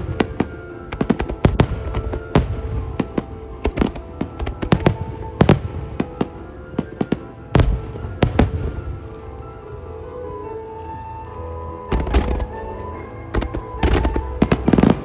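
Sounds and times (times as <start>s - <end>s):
fireworks bangs: 0.0s - 9.5s, 13.3s - 15.0s.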